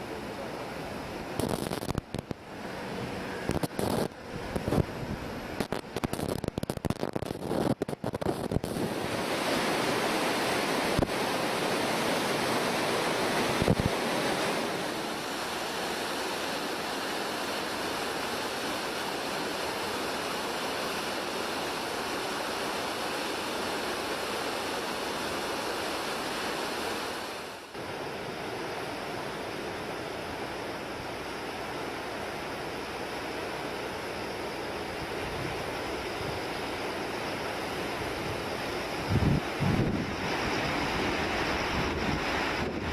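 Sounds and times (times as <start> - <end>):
flooded river rushing: 8.7 - 27.8.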